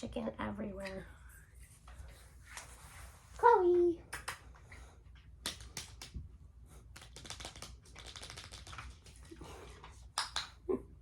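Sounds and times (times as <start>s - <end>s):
puppy claws clicking and tapping: 4.0s - 10.6s.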